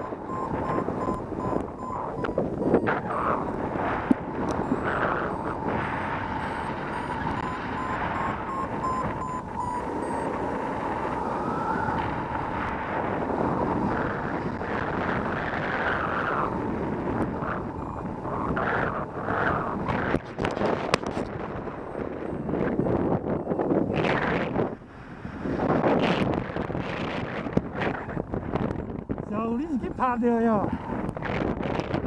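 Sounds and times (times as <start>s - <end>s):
short electronic beeps: 0.0s - 10.4s, 17.3s - 19.7s
thin steady electronic tone: 0.0s - 12.4s, 13.2s - 25.3s, 29.2s - 30.7s
wind rushing over microphone: 0.0s - 32.0s.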